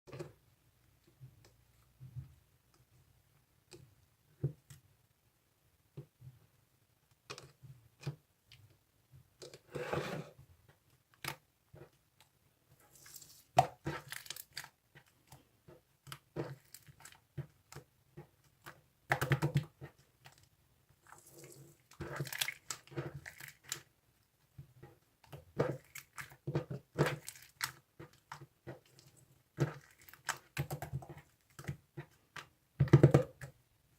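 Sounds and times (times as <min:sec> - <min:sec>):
slime squelching: 0:11.8 - 0:24.0, 0:24.8 - 0:32.6.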